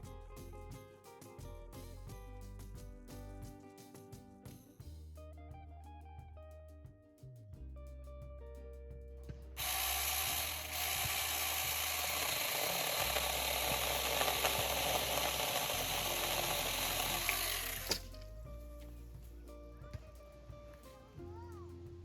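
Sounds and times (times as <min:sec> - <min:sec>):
light guitar music: 0:00.0 - 0:22.0
mini chainsaw cutting wood: 0:09.6 - 0:18.3.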